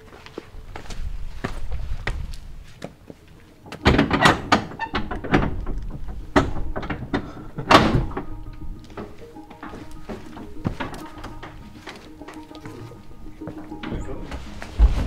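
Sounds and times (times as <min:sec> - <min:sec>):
footsteps on rocky trail: 0:00.0 - 0:03.8, 0:08.4 - 0:15.0.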